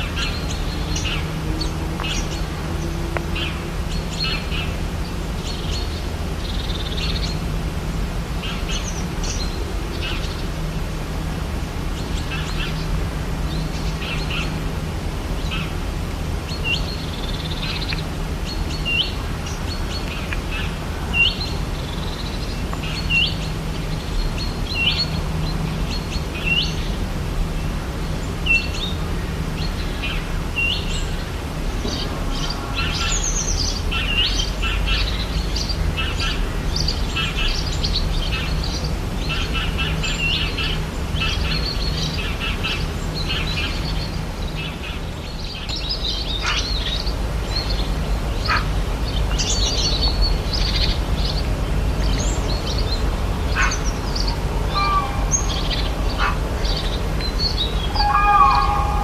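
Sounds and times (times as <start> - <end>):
chorus of bird chirps: 28.0 - 59.0
steady low rumble: 42.8 - 59.0
bird call with upward flick: 54.7 - 56.3, 57.6 - 59.0.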